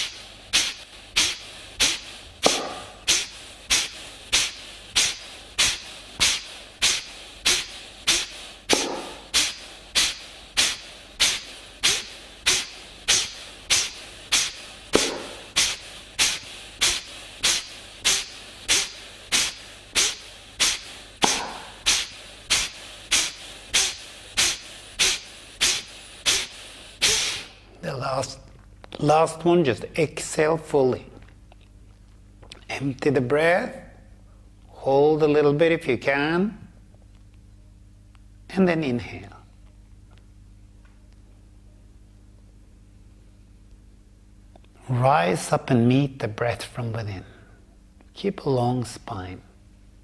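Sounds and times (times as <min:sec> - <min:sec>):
quiet inhale: 0:00.0 - 0:27.5, 0:47.2 - 0:47.7
forceful nasal exhalations: 0:00.0 - 0:27.6.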